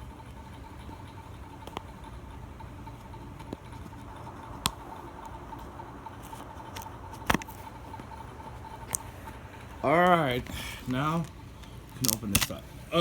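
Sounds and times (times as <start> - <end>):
faint hum: 0.0 - 13.0
sticker peeling: 2.8 - 9.8, 10.4 - 12.7.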